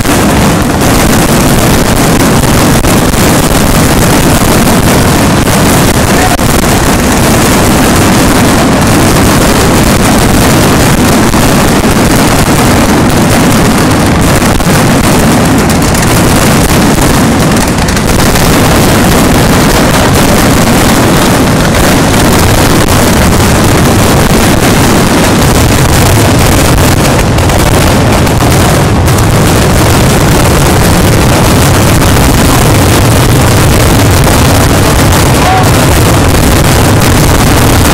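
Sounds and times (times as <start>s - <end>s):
fireworks bursting: 0.0s - 37.9s.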